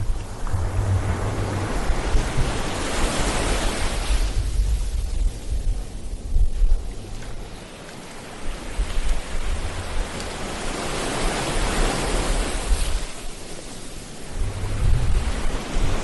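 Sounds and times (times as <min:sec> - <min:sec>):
low rumble: 0:00.0 - 0:07.6, 0:14.3 - 0:16.0
ocean waves breaking: 0:00.0 - 0:16.0.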